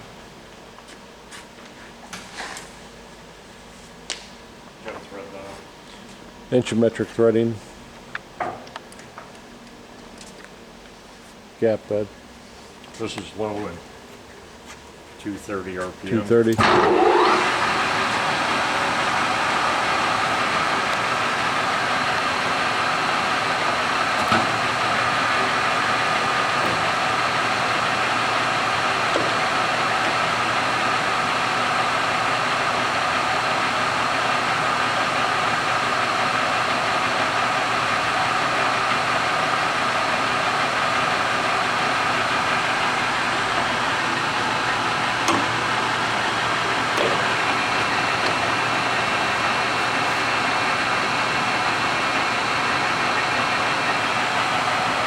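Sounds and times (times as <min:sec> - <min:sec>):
lathe motor humming and whining: 0:16.6 - 0:55.0.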